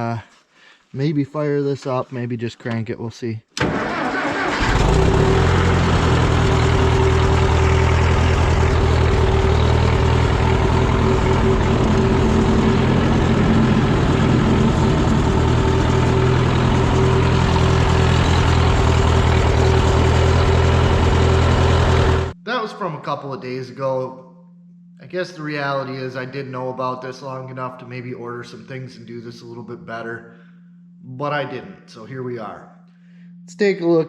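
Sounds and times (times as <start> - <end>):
tractor engine idling: 3.7 - 22.4
high whine: 5.4 - 26.6.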